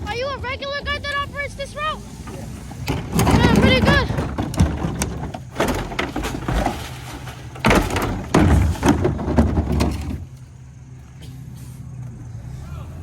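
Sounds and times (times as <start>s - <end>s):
garbage truck engine running: 0.0s - 13.0s
clattering and banging: 2.2s - 10.4s.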